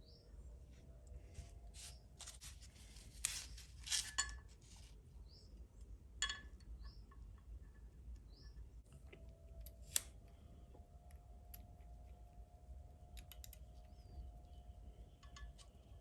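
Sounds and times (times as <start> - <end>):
small parts clicking and scraping: 1.8 - 4.9.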